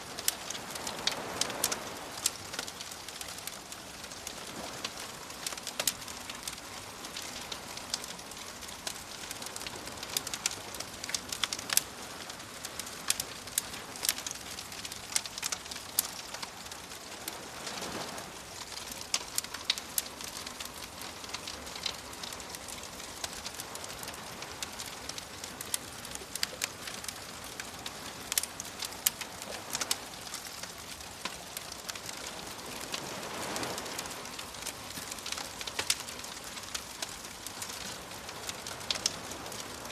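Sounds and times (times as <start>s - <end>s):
waves washing in: 0.0s - 10.5s, 15.3s - 21.0s, 26.7s - 39.9s
wood fire crackling: 0.0s - 39.9s.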